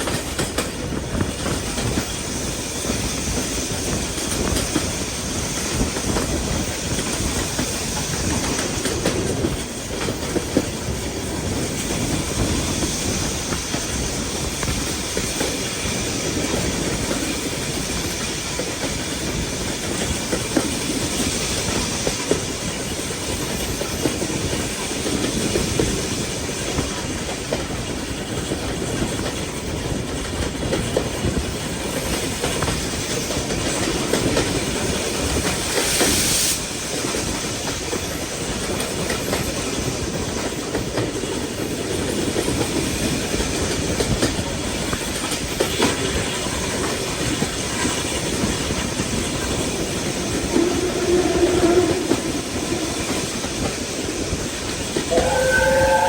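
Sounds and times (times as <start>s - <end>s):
train rumbling on track: 0.0s - 56.0s
wheels clacking over rail joints: 36.9s - 56.0s.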